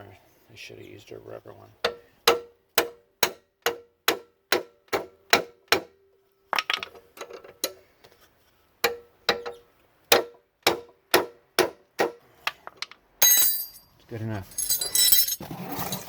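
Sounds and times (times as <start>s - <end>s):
mallet striking metal wrench: 13.2s - 13.8s.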